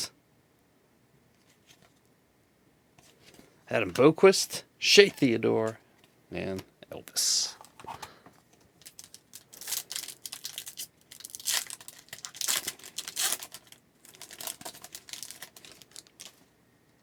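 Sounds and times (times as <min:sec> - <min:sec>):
foil wrapper crinkling and tearing: 0:08.8 - 0:16.4.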